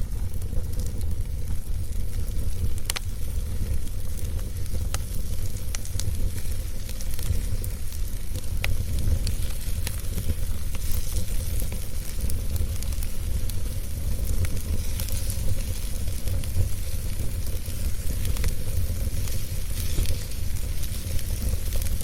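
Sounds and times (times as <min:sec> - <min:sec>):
rumble of flames: 0:00.0 - 0:22.0
wood crackling and popping: 0:00.0 - 0:22.0.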